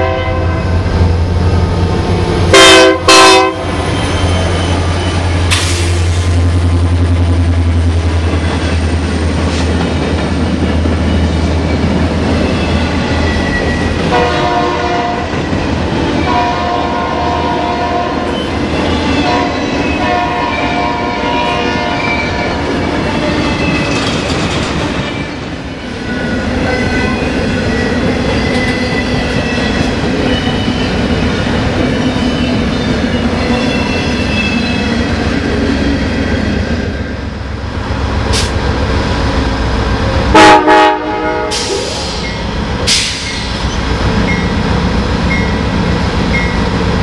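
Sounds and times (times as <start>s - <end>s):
diesel locomotive engine drone: 0.0s - 47.0s
train wheel rumble and clatter: 0.0s - 47.0s
wheels squealing: 3.6s - 6.1s, 10.6s - 14.1s, 22.0s - 36.6s.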